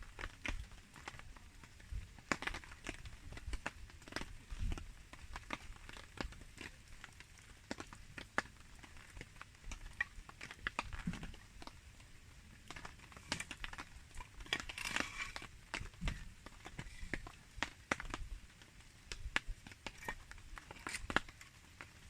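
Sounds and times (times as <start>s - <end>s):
campfire crackling and popping: 0.0s - 22.0s
rain: 0.0s - 22.0s.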